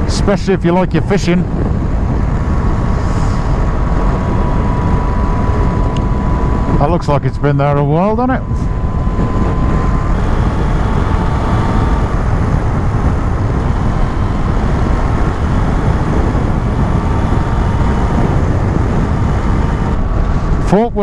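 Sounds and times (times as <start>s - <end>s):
motorcycle engine running: 0.0s - 20.9s
wind and road noise: 0.0s - 21.0s.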